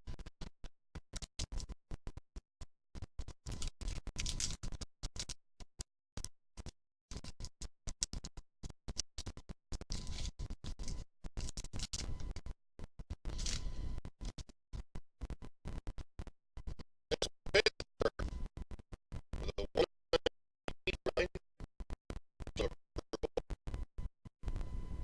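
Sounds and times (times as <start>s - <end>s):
trading cards handled: 3.6s - 5.4s, 13.3s - 13.7s.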